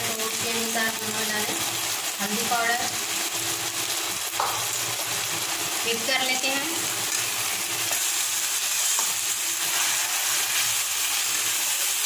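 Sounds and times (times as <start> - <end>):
masala sizzling in oil: 0.0 - 12.0
spatula stirring: 7.1 - 11.6.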